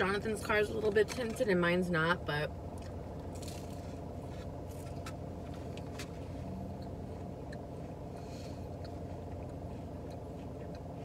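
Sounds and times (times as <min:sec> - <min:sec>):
car cabin hum: 0:00.0 - 0:11.0
chewing with crunches: 0:02.7 - 0:11.0.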